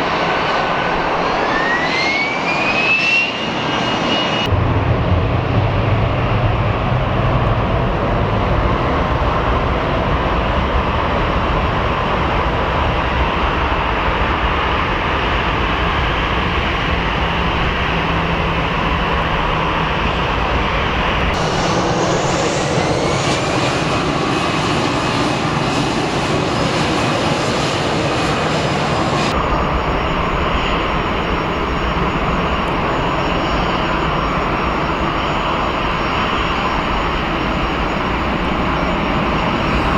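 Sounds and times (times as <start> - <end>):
jet engines at takeoff power: 0.0 - 39.9
rising engine whine: 0.0 - 39.9.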